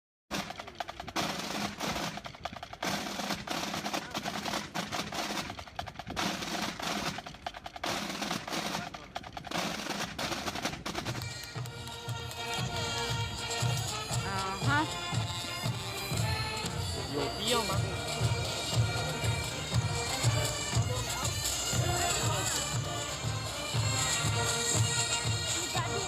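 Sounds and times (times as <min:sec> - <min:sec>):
rapid snare drum rolls: 0:00.3 - 0:26.0
bagpipe band melody: 0:09.5 - 0:26.0.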